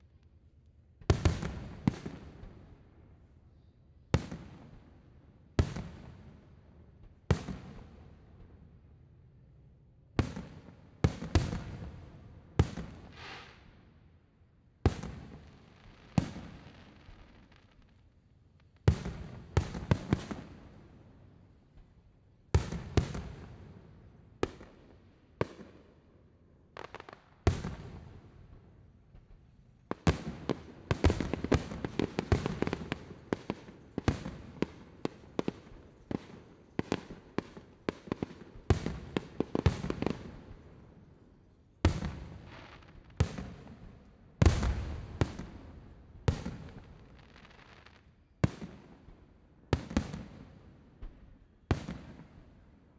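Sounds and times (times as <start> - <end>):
fireworks exploding: 26.8 - 41.0, 41.9 - 50.6
fireworks crackling: 29.9 - 41.0, 41.9 - 48.1.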